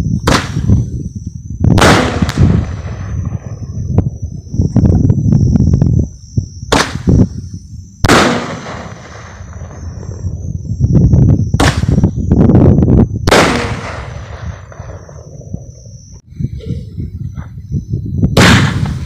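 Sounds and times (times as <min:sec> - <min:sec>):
firework booms: 0:00.1 - 0:16.0, 0:18.2 - 0:19.0
firework crackling: 0:06.7 - 0:10.4.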